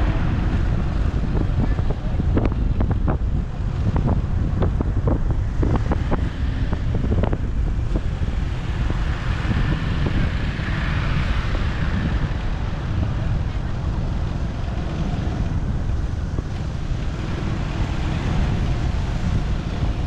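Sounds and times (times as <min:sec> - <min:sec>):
motorcycle engine and road rumble: 0:00.0 - 0:20.0
wind buffeting microphone: 0:00.0 - 0:20.0.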